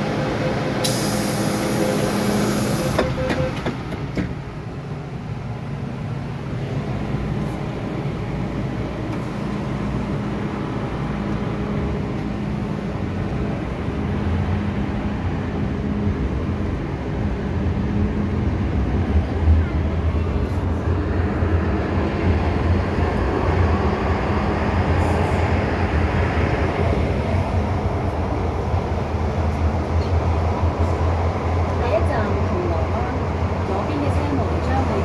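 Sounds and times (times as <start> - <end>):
train running on rails: 0.0 - 35.0
loud hiss: 0.8 - 3.0.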